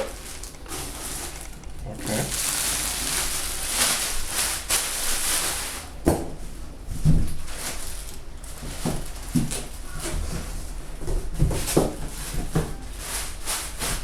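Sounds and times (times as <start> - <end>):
packaging rustling: 0.0 - 5.8.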